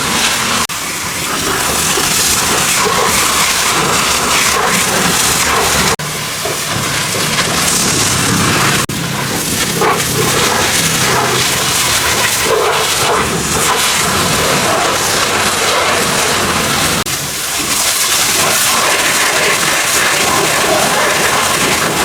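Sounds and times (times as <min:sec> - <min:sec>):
high-pressure water jet hissing: 0:00.0 - 0:22.0.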